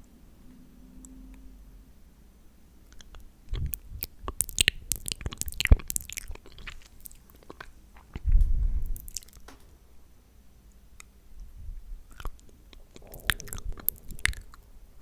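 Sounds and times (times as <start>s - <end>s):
lip smacks and tongue clicks: 2.9s - 9.5s, 12.1s - 14.7s
muffled bumps against microphone: 8.2s - 8.9s.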